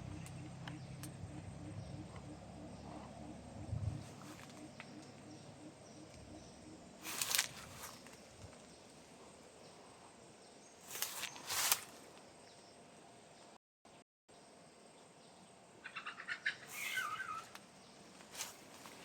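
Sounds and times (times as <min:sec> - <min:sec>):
faint garden ambience: 0:00.0 - 0:19.0
rustling hiss: 0:04.0 - 0:09.2, 0:10.8 - 0:12.2, 0:16.6 - 0:19.0.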